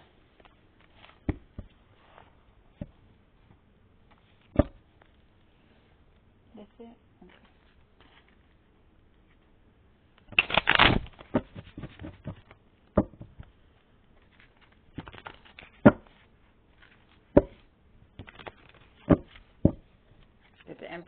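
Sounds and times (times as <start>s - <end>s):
cards being shuffled: 7.3s - 8.6s, 10.2s - 12.5s, 14.1s - 17.2s, 18.2s - 19.5s.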